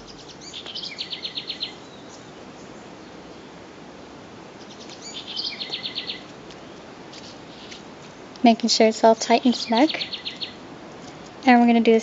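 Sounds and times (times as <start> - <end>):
songbird singing with trill: 0.0 - 3.6, 4.6 - 6.8, 8.7 - 10.6
steady background hiss: 0.0 - 12.0.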